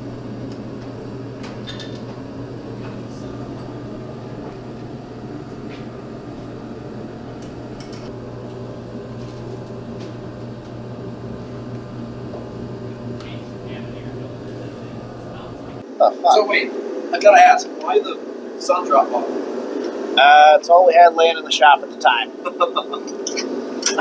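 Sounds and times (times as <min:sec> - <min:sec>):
mechanical hum: 0:00.0 - 0:24.0.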